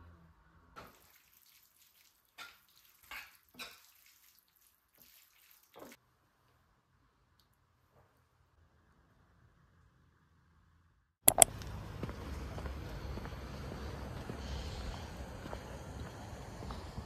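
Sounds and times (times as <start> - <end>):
faint running water: 0.8 - 6.0
water drips and splashes: 0.8 - 6.0.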